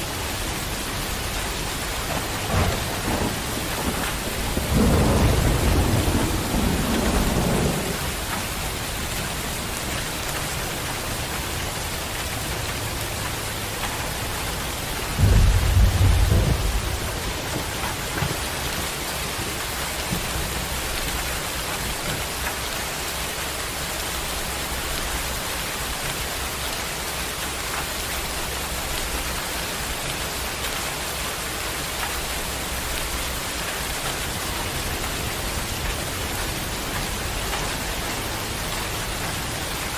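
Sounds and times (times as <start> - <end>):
thunder rumbling: 0.0 - 22.7
heavy rain pouring: 0.0 - 39.9.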